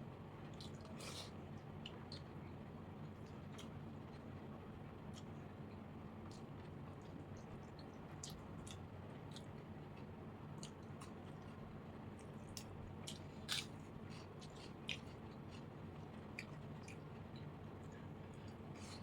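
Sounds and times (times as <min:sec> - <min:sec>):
short food crunches: 0:12.2 - 0:15.7.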